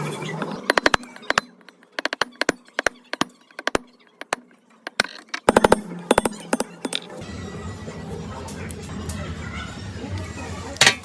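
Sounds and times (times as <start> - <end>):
sharp taps and knocks on generator: 0.4 - 7.1.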